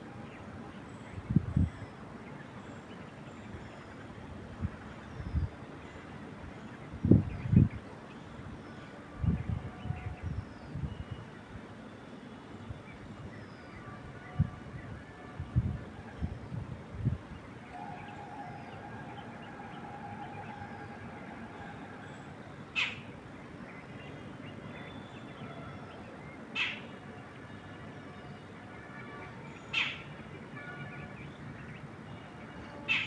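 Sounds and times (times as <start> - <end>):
long steady note: 12.0 - 26.4.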